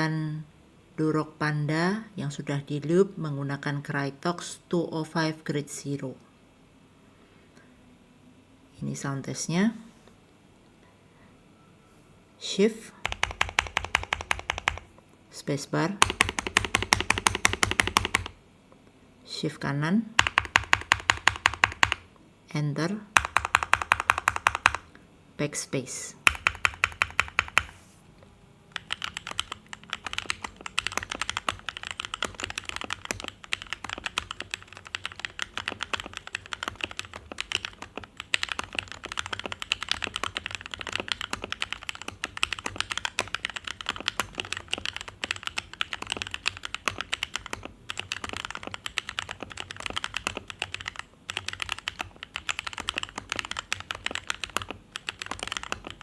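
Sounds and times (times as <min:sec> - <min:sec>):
mechanical keyboard typing: 0:13.0 - 0:14.9, 0:16.0 - 0:18.4, 0:20.2 - 0:22.1, 0:23.2 - 0:24.9, 0:26.2 - 0:27.7, 0:28.7 - 0:56.0.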